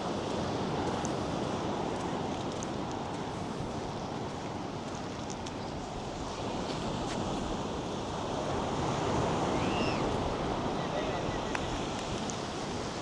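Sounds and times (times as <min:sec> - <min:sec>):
wind: 0:00.0 - 0:13.0
surf rushing onto a beach: 0:06.2 - 0:13.0.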